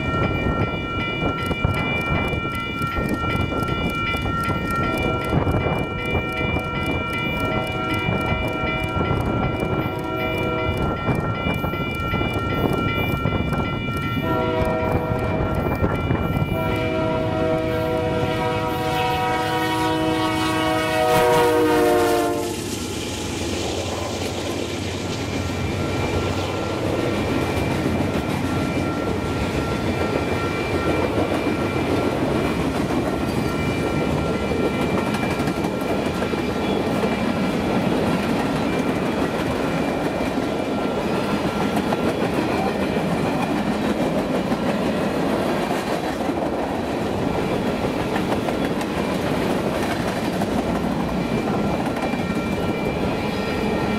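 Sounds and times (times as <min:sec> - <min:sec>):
locomotive air horn blowing: 0:14.2 - 0:15.4, 0:16.5 - 0:22.7.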